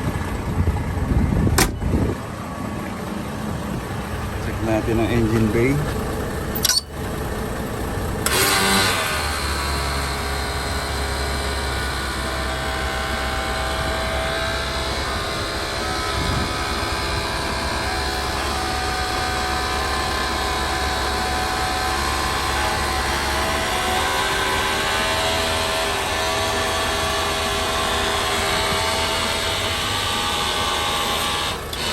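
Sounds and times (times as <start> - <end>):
diesel truck engine idling: 0.0 - 31.9.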